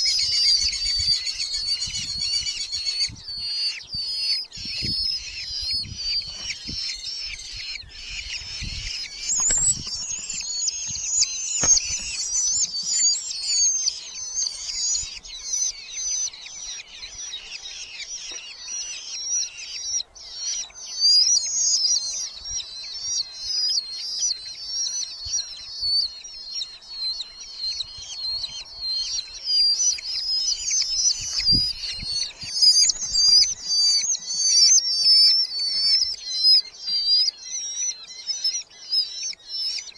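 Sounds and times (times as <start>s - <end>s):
falcons chattering calls: 3.6s - 20.6s, 27.4s - 38.5s.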